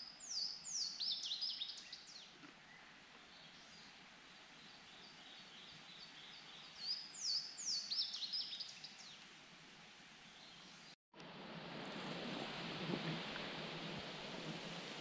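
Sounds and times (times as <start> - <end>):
songbird singing: 0.0 - 9.3
faint steady hiss: 0.0 - 15.0.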